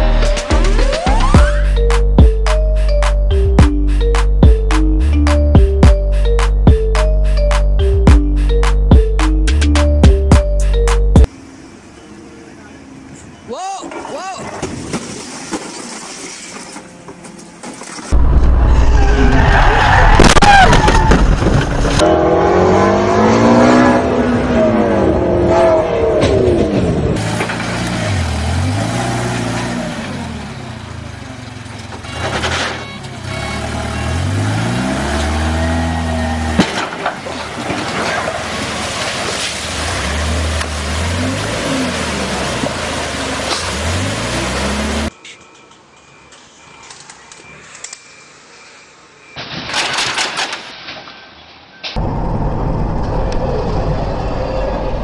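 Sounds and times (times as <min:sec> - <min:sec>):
vehicle engines revving: 0:21.6 - 0:45.2.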